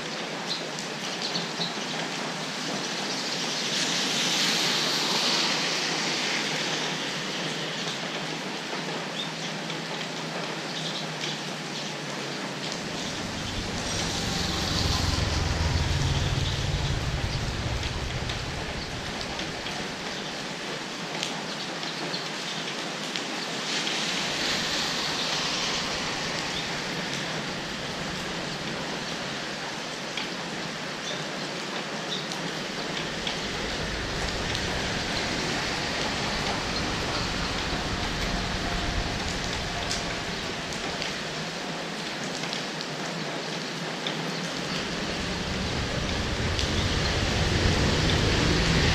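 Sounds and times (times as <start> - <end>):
rain hissing on surfaces: 0.0 - 48.9
low rumble: 12.6 - 20.9, 24.1 - 30.6, 31.9 - 42.4, 44.4 - 48.9.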